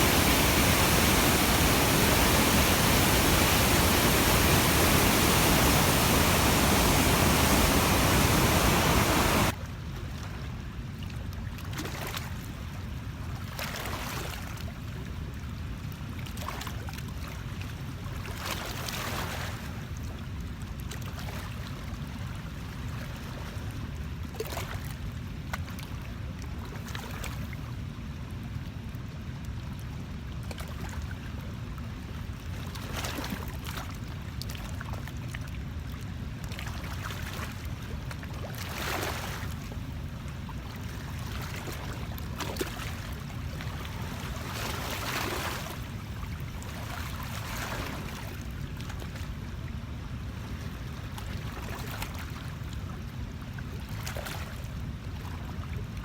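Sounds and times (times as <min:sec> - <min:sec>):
river water: 0:00.0 - 0:09.6, 0:38.3 - 0:49.3
wind: 0:00.0 - 0:56.0.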